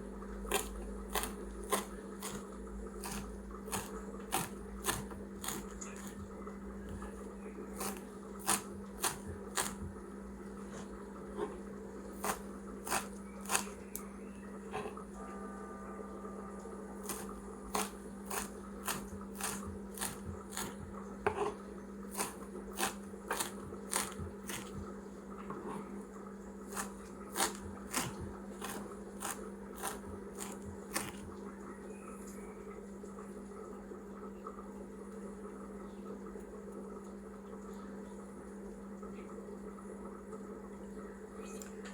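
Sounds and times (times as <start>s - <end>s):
steady low hum: 0.0s - 41.9s
knife chopping on cutting board: 0.5s - 2.4s, 3.0s - 6.2s, 7.8s - 10.0s, 12.2s - 13.7s, 17.0s - 24.9s, 26.7s - 31.3s.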